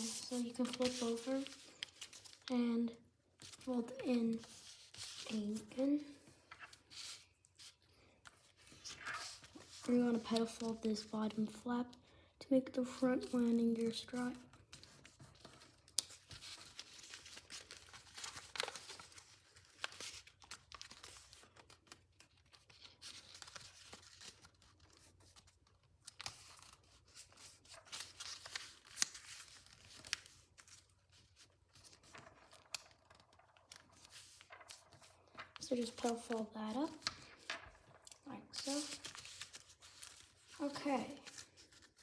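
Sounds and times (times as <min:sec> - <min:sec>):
paper being folded and creased: 0:00.0 - 0:12.0, 0:12.9 - 0:42.0.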